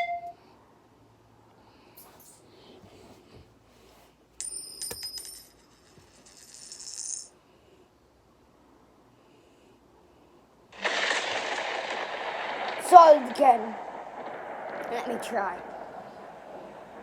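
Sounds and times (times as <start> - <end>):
metallic clinking and ringing: 4.4 - 7.3.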